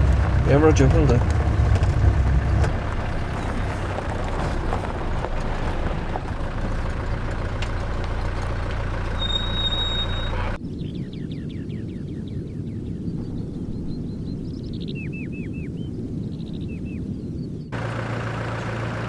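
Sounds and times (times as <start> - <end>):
knocks and rattles: 0.0 - 9.4
vehicle engine running: 0.0 - 10.6, 17.7 - 19.0
faint birdsong: 5.6 - 17.8.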